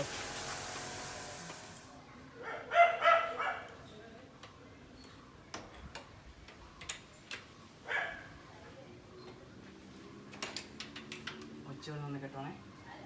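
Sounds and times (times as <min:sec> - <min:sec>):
high hiss: 0:00.0 - 0:02.0
dog barking: 0:02.4 - 0:03.7, 0:07.9 - 0:08.3.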